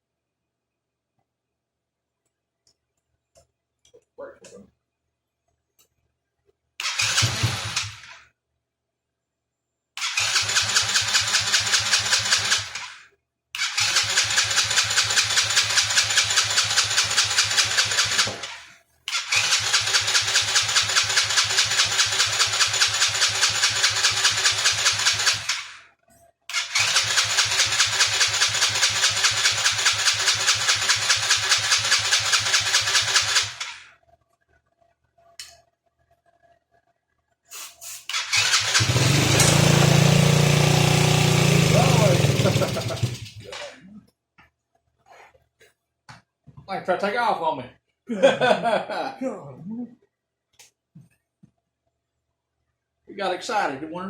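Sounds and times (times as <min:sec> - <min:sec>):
engine running: 0:06.8 - 0:08.1, 0:38.1 - 0:43.7
small engine cranking: 0:06.8 - 0:08.2, 0:10.0 - 0:13.0, 0:13.6 - 0:25.8, 0:26.5 - 0:33.9, 0:38.1 - 0:43.7.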